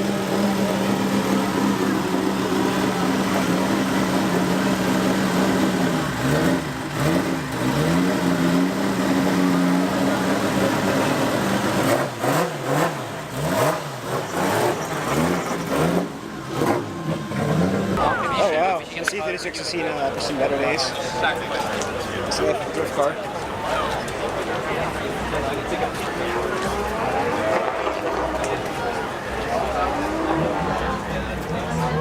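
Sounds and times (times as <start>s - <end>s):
car engine idling and revving: 0.0s - 32.0s
exhaust cracks: 21.3s - 32.0s.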